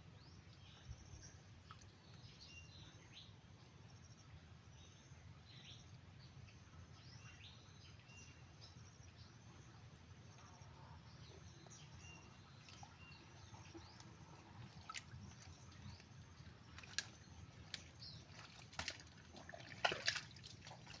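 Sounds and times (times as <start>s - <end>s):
sharp wet clicks and drips: 1.6s - 2.3s, 12.5s - 21.0s.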